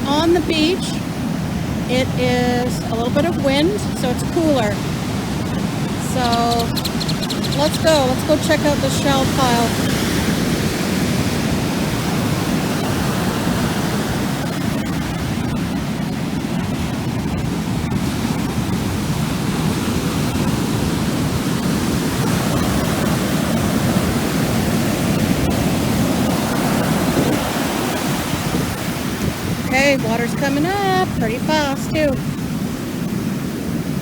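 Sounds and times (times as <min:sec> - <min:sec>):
surf waves roaring: 0:00.0 - 0:34.0.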